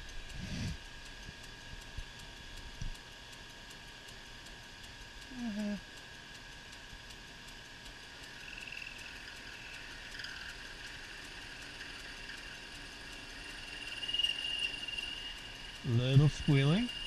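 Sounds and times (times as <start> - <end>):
lathe tool squealing whine: 8.3 - 17.0.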